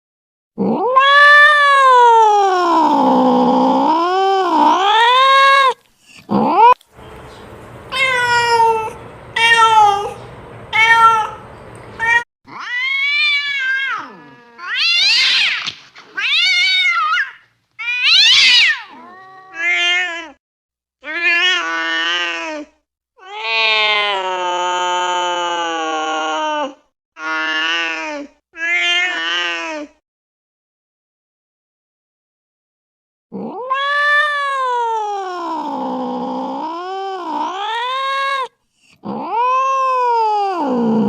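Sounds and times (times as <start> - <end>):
cats meowing: 0.6 - 20.1.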